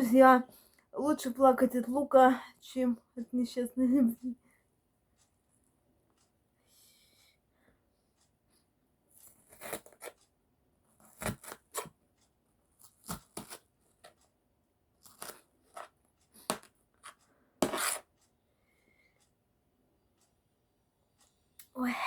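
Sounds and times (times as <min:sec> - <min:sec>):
knife cutting onions on board: 0:11.1 - 0:11.9, 0:15.1 - 0:18.1.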